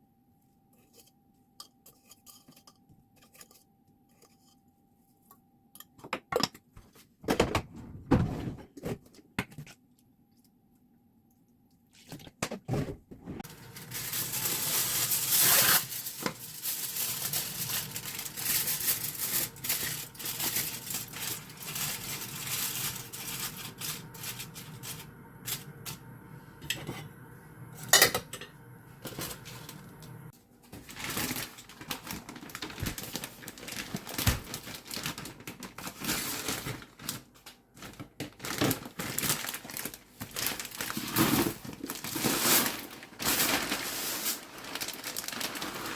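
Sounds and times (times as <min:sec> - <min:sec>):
dishes and utensils clinking: 0:27.8 - 0:29.4.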